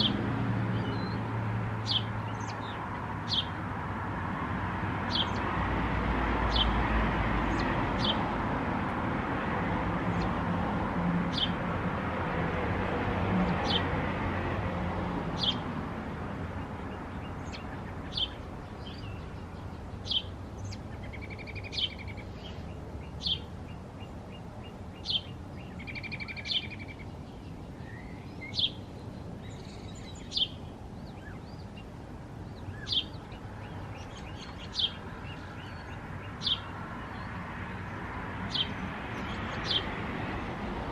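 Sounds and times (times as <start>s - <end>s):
small bird chirping: 1.8s - 3.6s, 17.2s - 31.9s, 32.5s - 37.2s.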